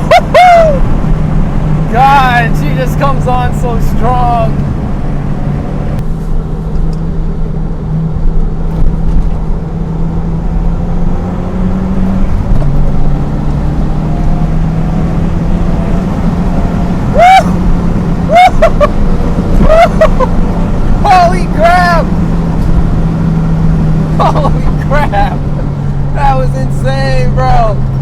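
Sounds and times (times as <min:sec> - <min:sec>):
person whooping: 0:00.0 - 0:00.9, 0:17.1 - 0:17.6, 0:18.2 - 0:20.3
car engine accelerating: 0:00.0 - 0:28.0.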